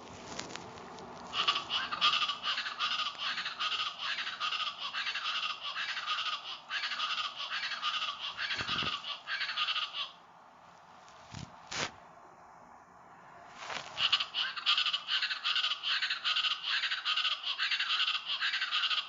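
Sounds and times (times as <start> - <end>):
birds calling rapidly: 1.3 - 10.6, 13.6 - 19.0.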